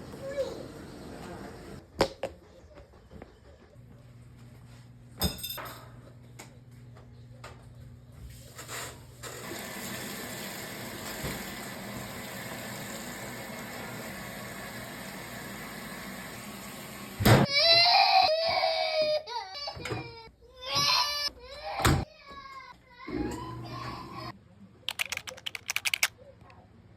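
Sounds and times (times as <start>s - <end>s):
baby crying: 17.5s - 24.3s.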